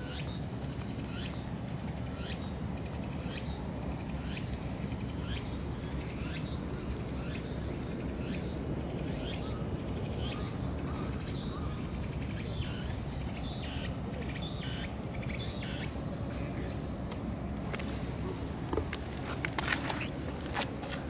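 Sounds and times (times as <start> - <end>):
bird chirping: 0.0 - 16.9
low background rumble: 0.0 - 21.0.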